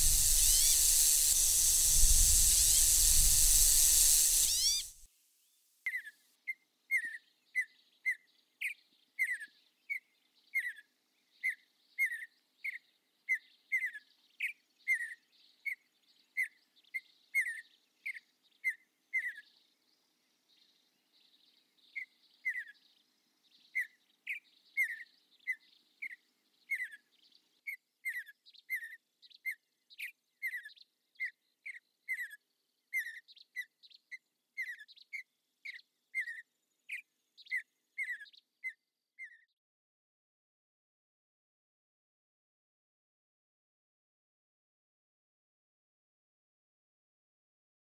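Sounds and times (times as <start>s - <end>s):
bird chirping: 0.0s - 5.0s, 28.1s - 39.5s.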